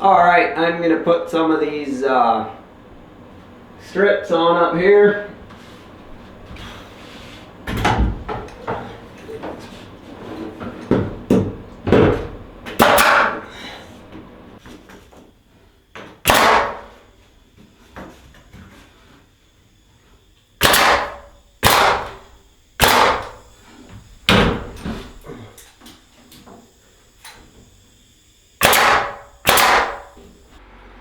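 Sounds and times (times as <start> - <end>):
hammer banging nails: 10.6 - 13.5, 16.0 - 17.0, 20.6 - 25.2, 28.6 - 30.4
handling knocks: 22.9 - 25.4.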